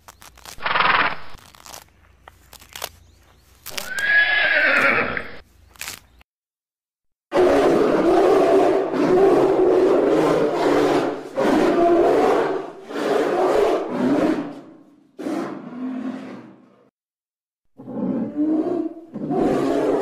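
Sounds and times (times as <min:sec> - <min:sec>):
bears growling and roaring: 0:07.3 - 0:16.9, 0:17.7 - 0:20.0.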